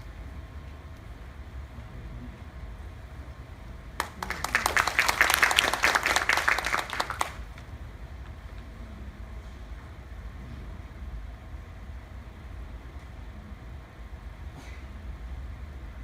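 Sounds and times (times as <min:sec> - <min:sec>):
audience applauding: 0:04.0 - 0:07.7.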